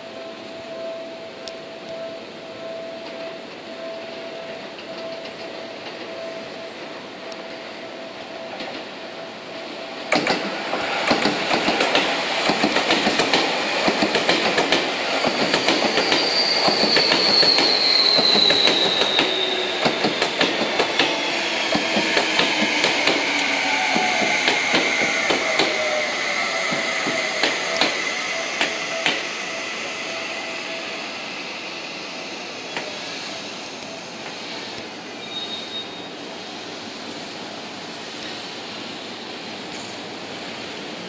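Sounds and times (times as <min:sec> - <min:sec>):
train wheels clicking over rail joints: 0:10.1 - 0:26.0, 0:26.6 - 0:29.3.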